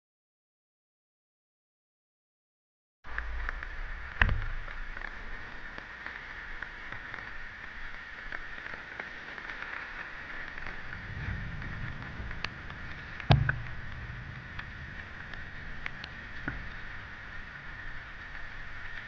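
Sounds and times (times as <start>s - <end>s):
rain falling: 3.1s - 19.0s
loud knock: 13.3s - 13.8s.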